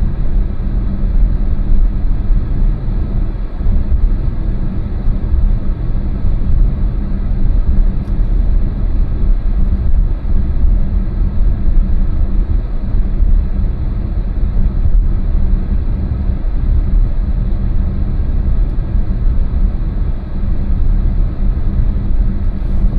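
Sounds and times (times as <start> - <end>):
car engine rumble: 0.0 - 22.9
road noise: 15.4 - 22.9.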